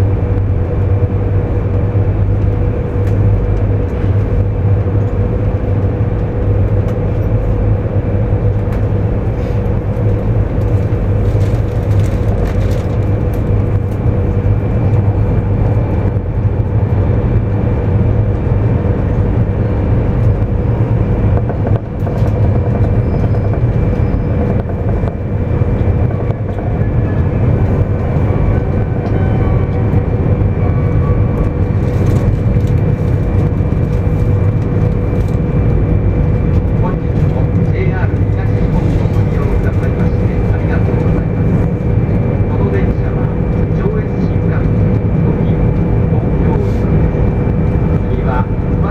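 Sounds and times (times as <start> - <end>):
constant hum: 0.0 - 48.9
train wheels rumbling on track: 0.0 - 48.9.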